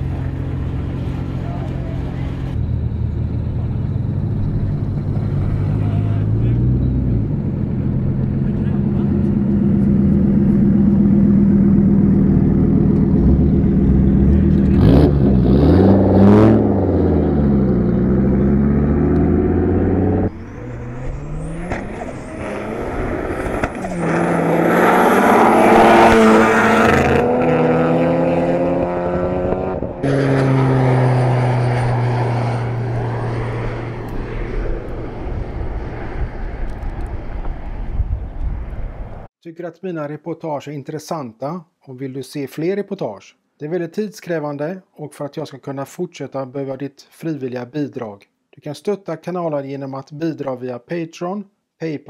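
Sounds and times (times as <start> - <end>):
drag race car engines revving: 0.0 - 37.4.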